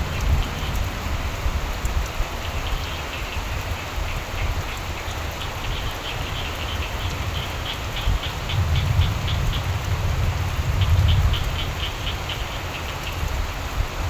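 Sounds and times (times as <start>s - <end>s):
rain falling: 0.0s - 14.0s
frogs croaking: 2.4s - 13.3s.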